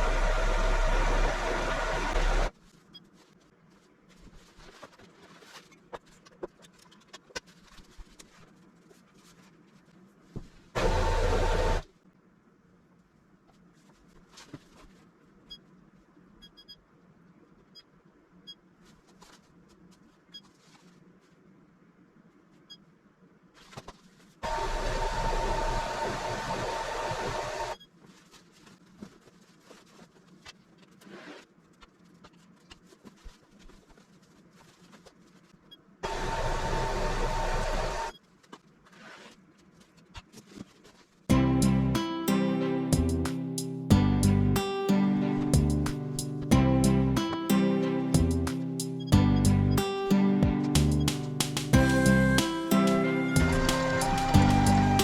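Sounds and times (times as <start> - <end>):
electric motor whining: 0.0 - 2.5, 51.8 - 55.0
machine motor hum and whine: 0.0 - 2.5, 10.8 - 11.8, 24.4 - 27.8, 36.0 - 38.1, 51.8 - 55.0.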